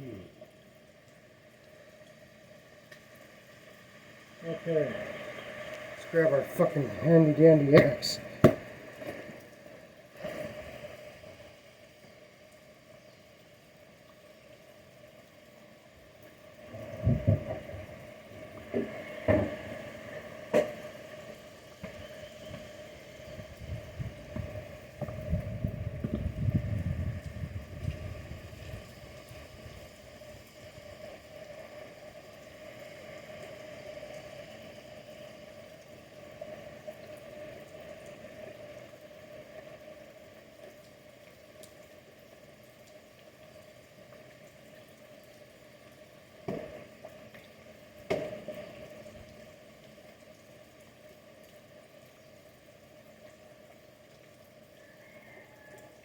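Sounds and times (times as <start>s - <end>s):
background hiss: 0.0s - 56.0s
faint steady hum: 0.0s - 56.0s
sharp knocks: 7.8s - 8.7s.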